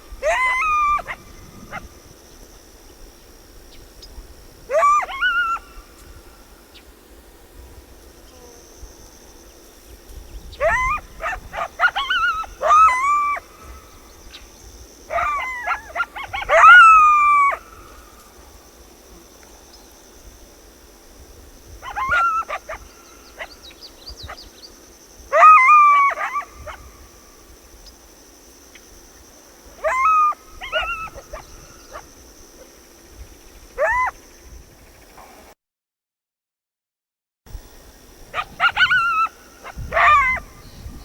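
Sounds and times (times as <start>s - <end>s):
coyote yips and howls: 0.0s - 2.1s, 4.7s - 6.2s, 10.5s - 14.4s, 15.0s - 18.5s, 21.7s - 24.6s, 25.3s - 27.2s, 29.7s - 32.7s, 33.7s - 34.3s, 38.3s - 41.0s.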